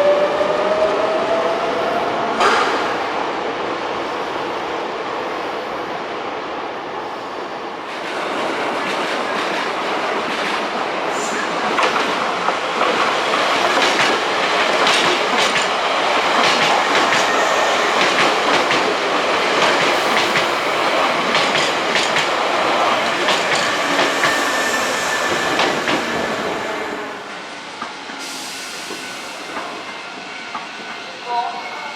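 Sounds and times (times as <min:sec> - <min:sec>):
electric train passing: 0:00.0 - 0:31.9
wheels clacking over rail joints: 0:11.6 - 0:17.3.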